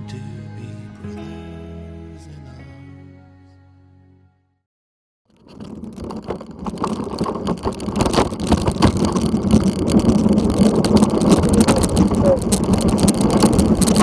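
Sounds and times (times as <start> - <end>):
bike tyres on rough trail: 5.3 - 14.0
wind on microphone: 5.4 - 14.0.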